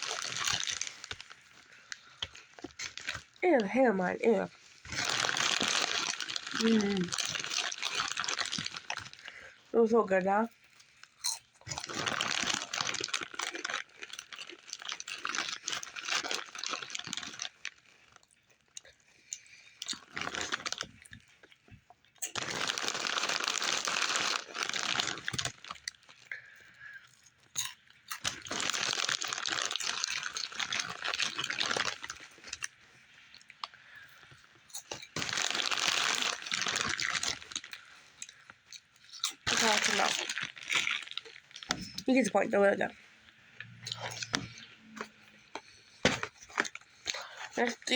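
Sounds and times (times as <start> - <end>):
potato chips crunched while chewing: 0.0 - 9.8, 10.5 - 42.3, 43.6 - 47.9.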